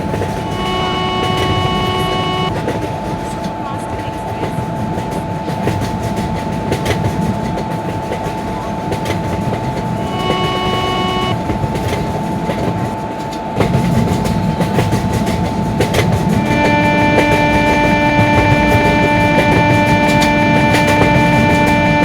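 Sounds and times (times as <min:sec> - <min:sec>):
brief pitched tone: 0:00.0 - 0:02.5, 0:10.0 - 0:11.9, 0:16.4 - 0:22.0
train wheels rumbling on rails: 0:00.0 - 0:22.0.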